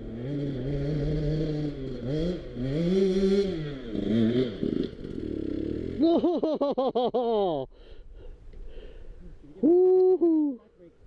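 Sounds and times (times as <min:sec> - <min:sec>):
two-stroke dirt bike engine revving: 0:00.0 - 0:06.0.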